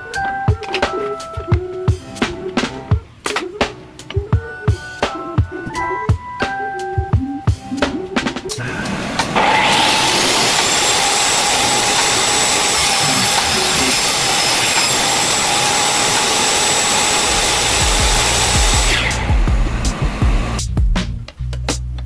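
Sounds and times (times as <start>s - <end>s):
belt sander running: 8.6s - 20.6s.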